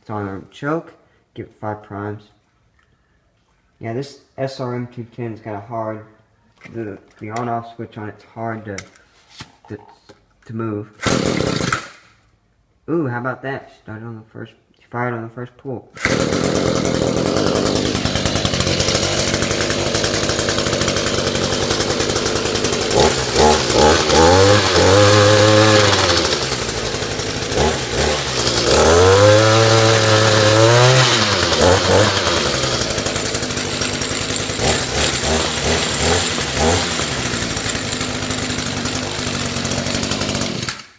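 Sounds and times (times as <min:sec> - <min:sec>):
string trimmer engine revving: 0:11.0 - 0:11.9, 0:16.0 - 0:40.9
string trimmer engine idling: 0:11.1 - 0:11.8, 0:16.0 - 0:40.9.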